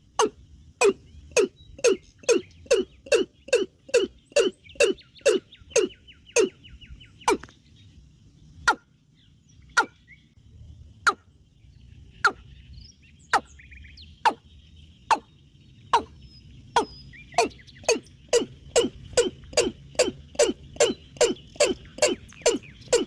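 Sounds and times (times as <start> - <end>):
faint chorus of small calls: 0.0 - 7.6, 11.0 - 23.0.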